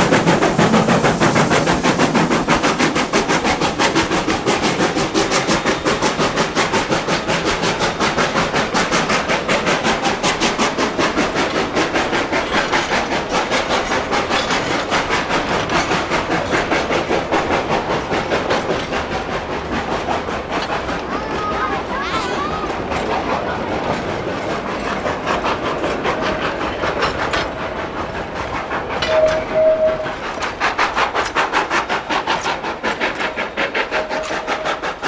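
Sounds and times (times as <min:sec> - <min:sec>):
steam locomotive chuffing: 0:00.0 - 0:35.0.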